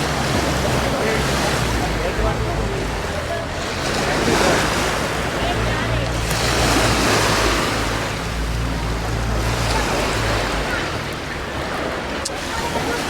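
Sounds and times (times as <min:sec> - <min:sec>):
sea waves washing onto beach: 0:00.0 - 0:13.0.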